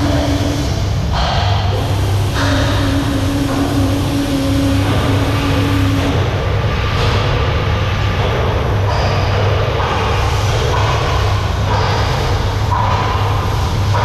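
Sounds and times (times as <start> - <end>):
engine room machinery drone: 0.0 - 14.0
higher machinery hum: 0.0 - 14.0.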